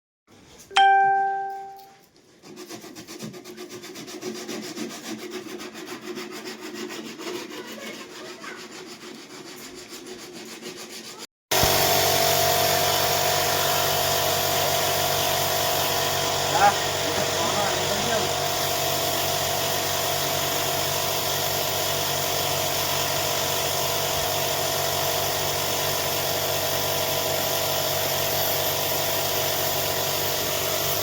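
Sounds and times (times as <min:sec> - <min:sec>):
bright ding: 0:00.7 - 0:02.0
fast rubbing on wood: 0:02.3 - 0:11.3
loud steady machine hum: 0:11.5 - 0:31.0.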